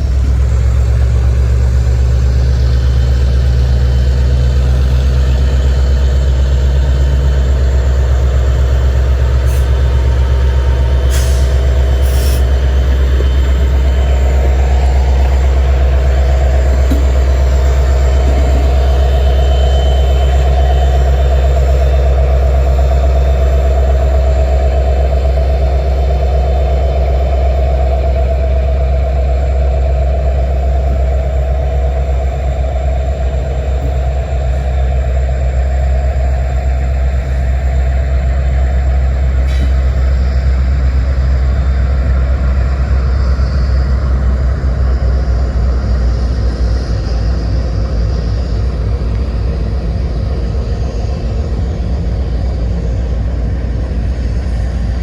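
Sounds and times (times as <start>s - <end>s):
locomotive engines droning: 0.0s - 55.0s.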